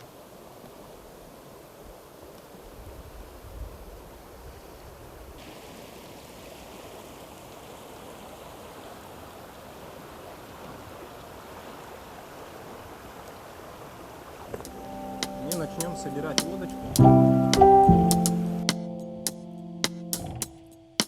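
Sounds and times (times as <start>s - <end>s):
river water flowing: 5.4s - 21.0s.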